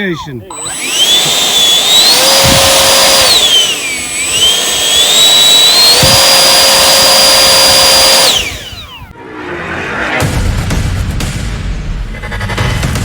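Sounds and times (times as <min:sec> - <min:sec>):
electric ducted fan whining: 0:00.0 - 0:09.1.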